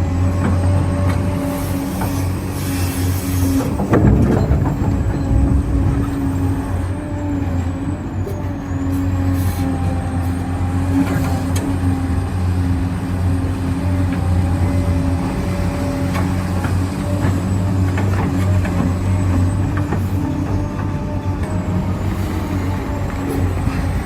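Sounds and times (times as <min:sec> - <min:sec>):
mechanical hum: 0:00.0 - 0:08.8
rattling: 0:03.7 - 0:07.0.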